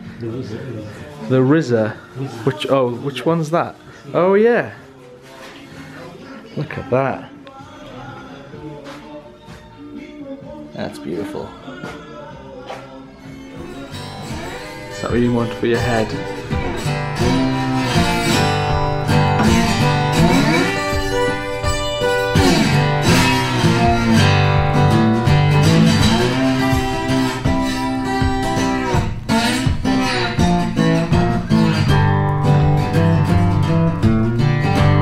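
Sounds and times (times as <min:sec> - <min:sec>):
strummed acoustic guitar: 0:12.7 - 0:35.0.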